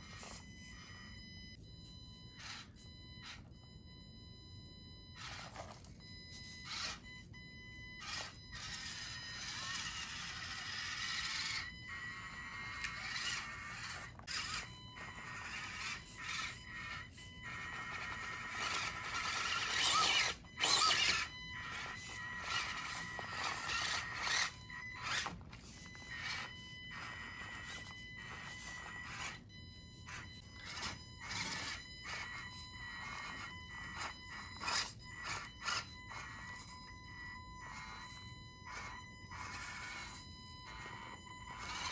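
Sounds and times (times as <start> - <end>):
small electric motor whining: 0.0 - 41.9.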